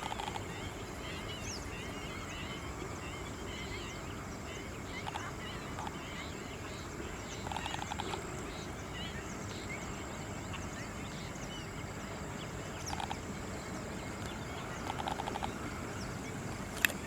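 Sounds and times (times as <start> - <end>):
birds chirping: 0.0 - 17.0
steady background hiss: 0.0 - 17.0
rapid bird chattering: 4.9 - 6.0, 7.4 - 8.3, 12.8 - 13.2, 14.5 - 15.8.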